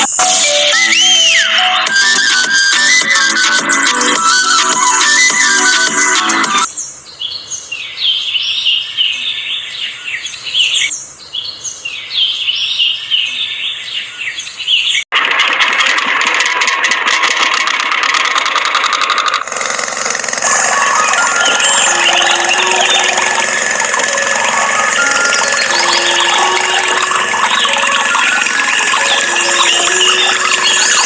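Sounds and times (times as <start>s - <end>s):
birds chirping: 0.8s - 15.1s, 19.5s - 31.0s
motor running with fast rattle: 15.1s - 31.0s.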